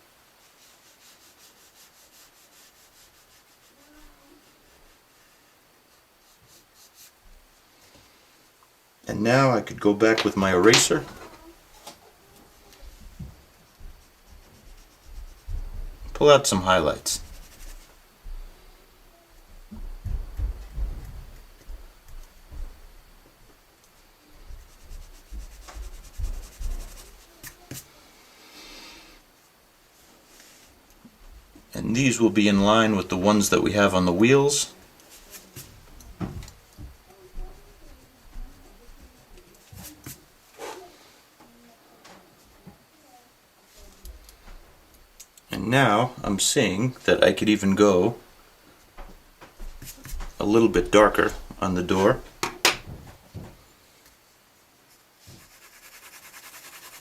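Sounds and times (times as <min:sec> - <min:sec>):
pencil rubbing on paper: 0:00.4 - 0:05.3, 0:05.9 - 0:07.2, 0:12.8 - 0:15.7, 0:16.8 - 0:18.0, 0:24.4 - 0:27.9, 0:37.3 - 0:40.3, 0:55.2 - 0:57.0.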